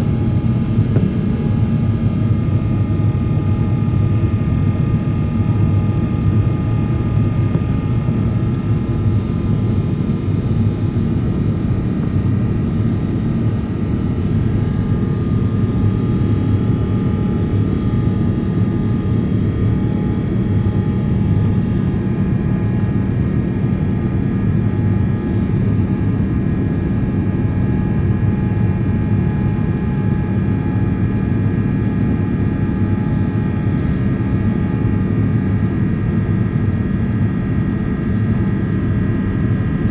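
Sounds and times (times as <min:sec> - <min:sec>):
jet engine roar in cabin: 0:00.0 - 0:39.9.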